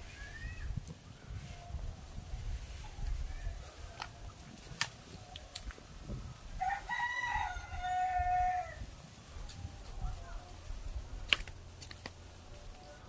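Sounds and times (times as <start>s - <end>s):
rooster crowing: 6.6s - 8.9s.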